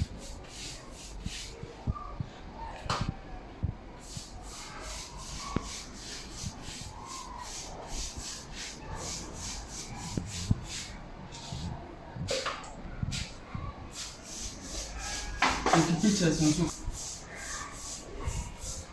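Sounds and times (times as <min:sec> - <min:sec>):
rubbing strokes on stone floor: 0:00.0 - 0:01.7, 0:04.0 - 0:11.8, 0:13.1 - 0:18.9.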